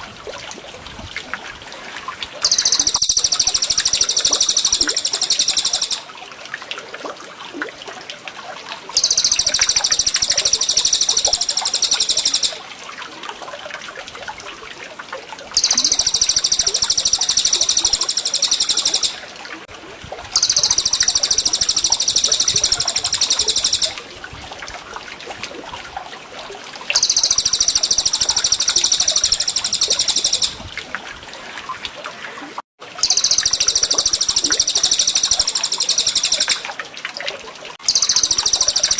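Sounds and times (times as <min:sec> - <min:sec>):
water trickling: 0:00.0 - 0:38.9
bird high rapid trilling: 0:02.4 - 0:06.1, 0:09.0 - 0:12.6, 0:15.6 - 0:19.2, 0:20.4 - 0:24.0, 0:27.0 - 0:30.6, 0:33.0 - 0:36.6, 0:37.9 - 0:38.9
faint bird chirps: 0:02.4 - 0:06.1, 0:09.0 - 0:12.6, 0:15.6 - 0:19.2, 0:20.4 - 0:24.0, 0:27.0 - 0:30.6, 0:33.0 - 0:36.6, 0:37.9 - 0:38.9.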